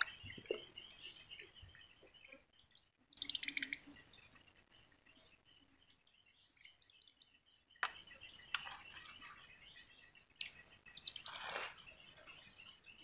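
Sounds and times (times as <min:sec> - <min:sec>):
small birds chirping: 0:00.0 - 0:13.0
brief rustle: 0:11.2 - 0:11.8.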